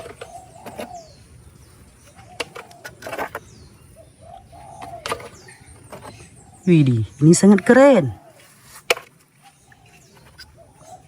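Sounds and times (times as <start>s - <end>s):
dove cooing: 0.0s - 11.0s
small birds chirping: 0.0s - 11.0s
plastic toys clicking: 2.4s - 3.5s.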